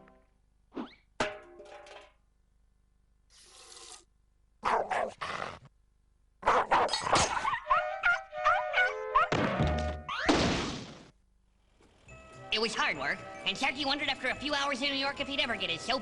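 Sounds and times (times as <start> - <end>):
cartoon dog barking and growling: 4.6 - 5.7, 6.4 - 9.4
music: 7.6 - 10.1, 12.1 - 16.0.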